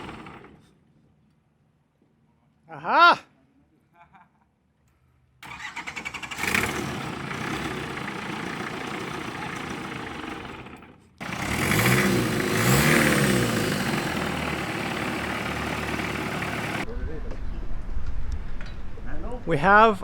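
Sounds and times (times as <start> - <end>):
diesel boat engine starting and revving: 0.0 - 0.7, 5.4 - 16.9.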